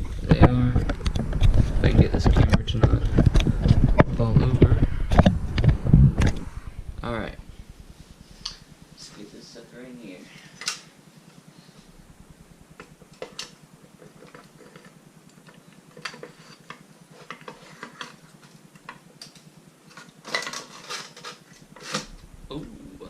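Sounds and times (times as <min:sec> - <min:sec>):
steady low hum: 0:00.0 - 0:23.0
metal parts clinking: 0:20.0 - 0:22.1.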